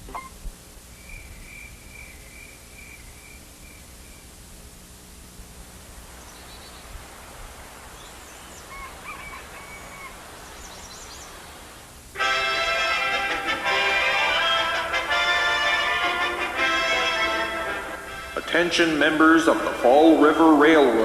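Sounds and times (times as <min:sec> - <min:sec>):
birds chirping: 0:00.0 - 0:04.4, 0:06.0 - 0:07.1, 0:07.8 - 0:12.6
low background hiss: 0:00.0 - 0:21.0.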